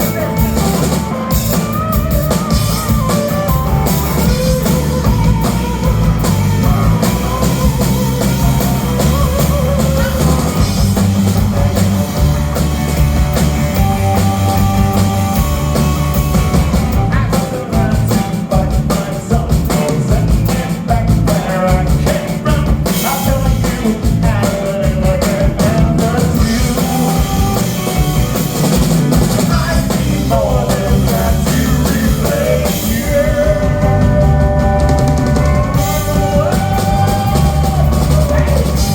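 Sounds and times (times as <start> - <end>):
live rock band playing: 0.0 - 38.9
person singing: 13.8 - 27.8, 29.4 - 38.9.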